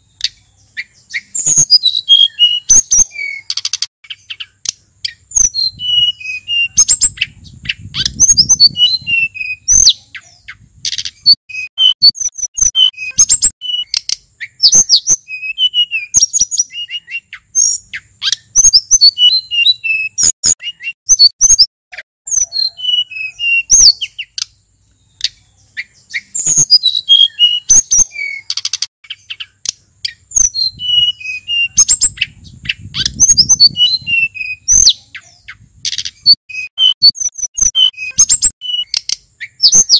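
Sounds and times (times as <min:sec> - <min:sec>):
songbird singing whistled phrases: 0:00.0 - 0:21.7, 0:22.3 - 0:39.9
sharp clicking bird notes: 0:02.3 - 0:05.2, 0:27.7 - 0:30.2, 0:34.9 - 0:39.9.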